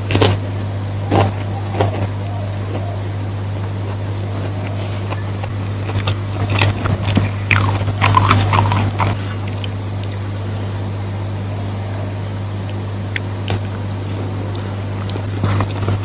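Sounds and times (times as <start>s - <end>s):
steady low hum: 0.0s - 16.0s
wet chewing and lip-smacking: 3.8s - 10.2s, 12.7s - 13.8s.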